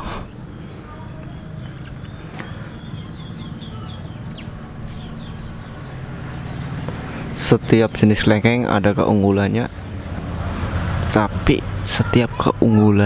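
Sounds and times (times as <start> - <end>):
small bird chirping: 0.0 - 8.8
low background rumble: 0.0 - 13.0.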